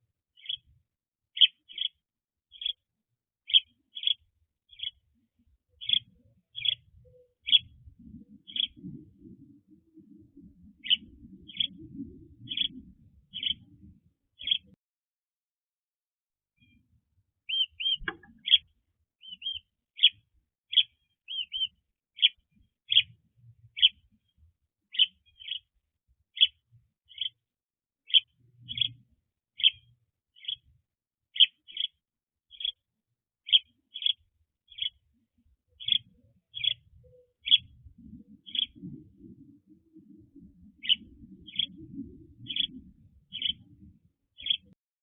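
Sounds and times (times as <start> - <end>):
bird chirping: 0.3 - 0.7, 1.4 - 5.0, 5.8 - 7.8, 8.5 - 9.0, 10.8 - 13.8, 14.4 - 14.8, 17.5 - 24.0, 24.9 - 25.7, 26.4 - 27.4, 28.1 - 29.0, 29.6 - 30.7, 31.4 - 32.8, 33.4 - 35.0, 35.8 - 39.0, 40.4 - 43.8, 44.4 - 44.8.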